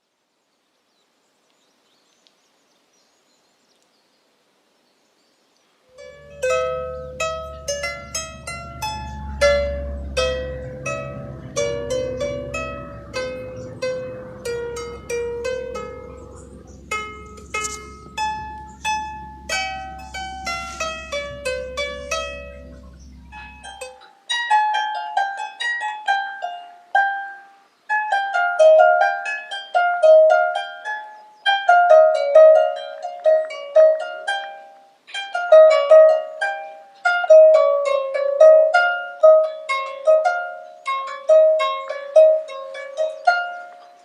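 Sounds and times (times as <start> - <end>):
low hum: 5.9 - 24.1
plucked lyre melody: 5.9 - 44.0.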